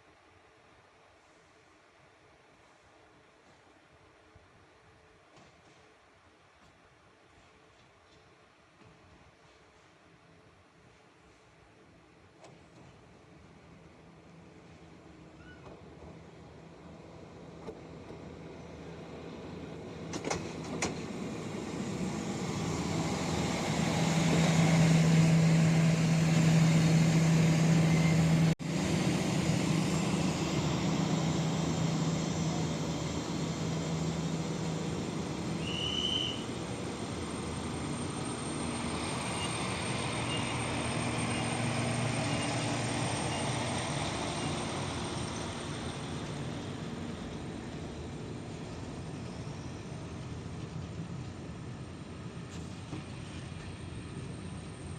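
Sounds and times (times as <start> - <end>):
train wheels on rails: 14.4 - 54.9.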